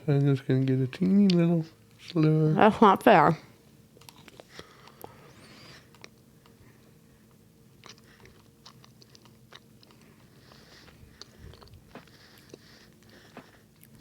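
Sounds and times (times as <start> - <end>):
chewing pastry crunches: 4.0 - 5.2, 7.7 - 14.0.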